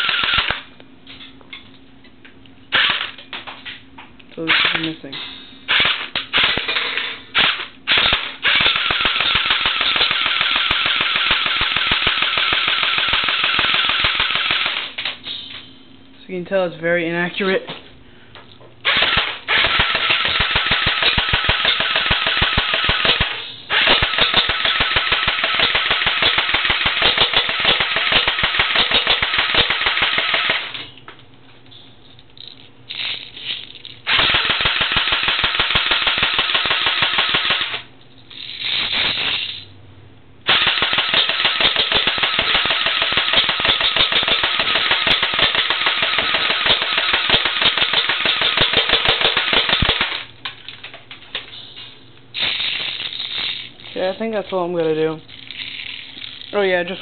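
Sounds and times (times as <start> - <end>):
airsoft gun firing full-auto: 0.0 - 0.6, 2.7 - 3.2, 5.7 - 6.7, 7.4 - 14.9, 18.9 - 30.8, 34.1 - 37.8, 40.5 - 50.3.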